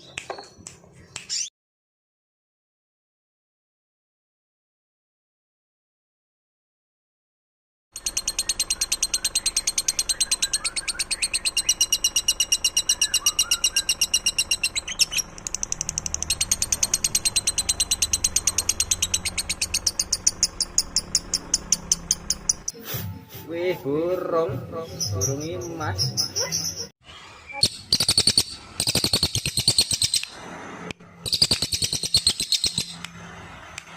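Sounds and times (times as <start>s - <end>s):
faint bird chirps: 8.0s - 22.7s
songbird high-pitched trill: 8.0s - 22.8s, 27.5s - 30.3s, 31.3s - 33.0s.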